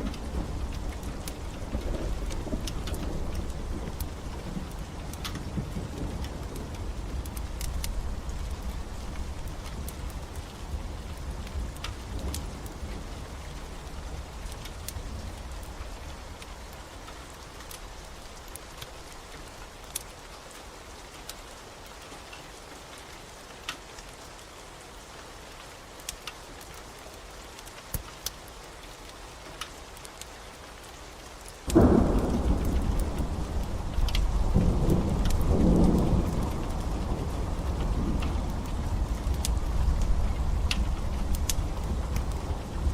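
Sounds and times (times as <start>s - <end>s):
thunder rumbling: 0.0s - 16.1s, 31.7s - 42.9s
wood fire crackling: 0.0s - 20.5s, 25.9s - 42.9s
steady rain: 0.0s - 42.9s.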